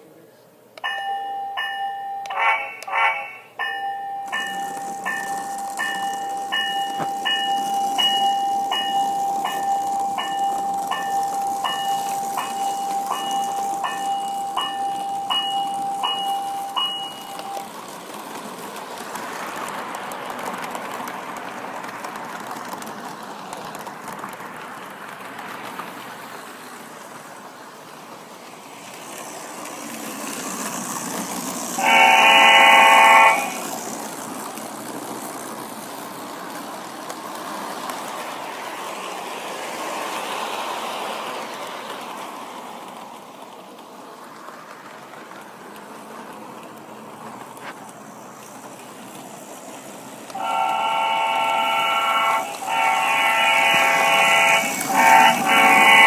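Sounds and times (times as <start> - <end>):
model train running: 0.8 - 56.0
train horn blast: 2.3 - 3.4, 31.8 - 33.7, 50.4 - 56.0.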